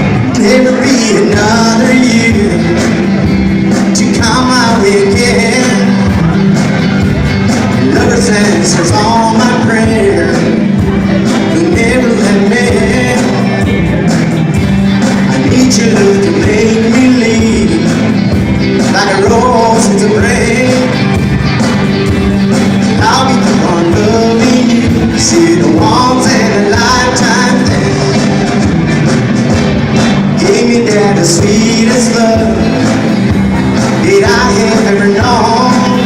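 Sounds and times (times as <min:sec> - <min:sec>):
band playing a song: 0:00.0 - 0:36.0
person singing: 0:00.0 - 0:36.0.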